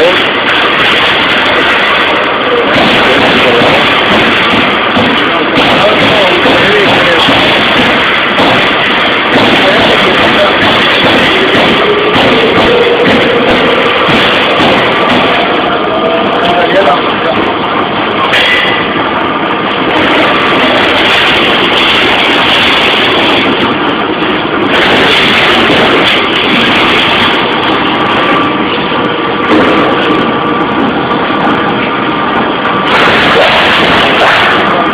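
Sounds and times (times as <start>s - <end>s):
punch press punching sheet metal: 2.7s - 15.5s.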